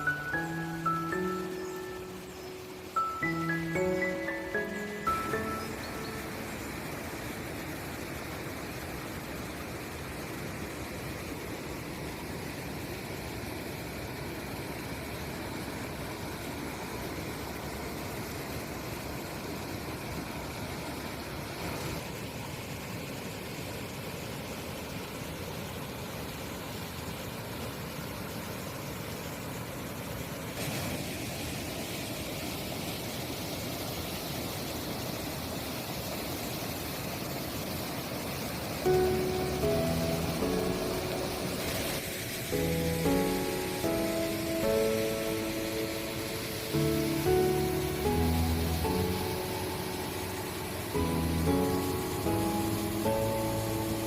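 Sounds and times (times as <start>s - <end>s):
waterfall rushing: 0.0s - 22.7s, 30.0s - 54.0s.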